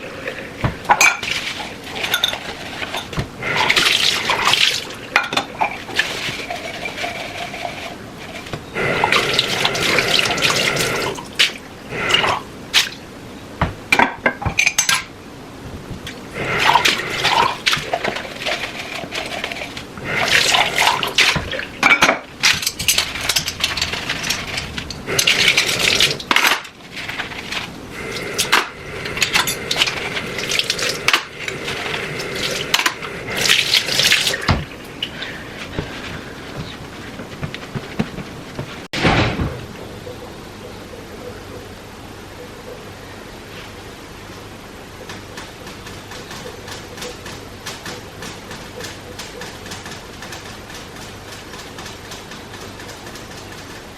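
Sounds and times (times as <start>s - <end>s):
water running: 0.0s - 13.1s, 16.0s - 39.0s
dishes and cutlery clinking: 0.8s - 3.2s, 14.0s - 15.1s, 21.8s - 25.3s.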